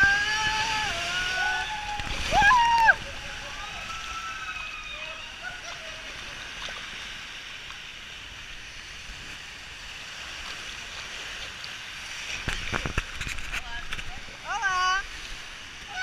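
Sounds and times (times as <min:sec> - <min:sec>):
water rushing down a slide: 0:00.0 - 0:08.4.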